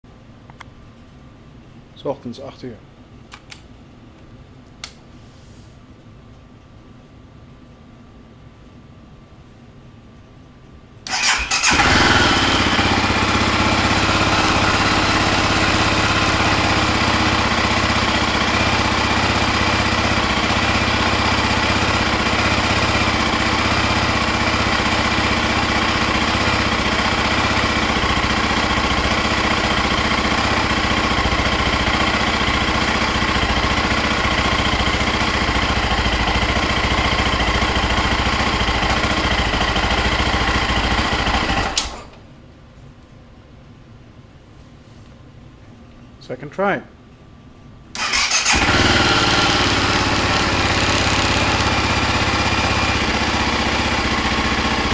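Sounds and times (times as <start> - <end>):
motorcycle engine starting and running: 11.1 - 42.2, 48.0 - 54.9.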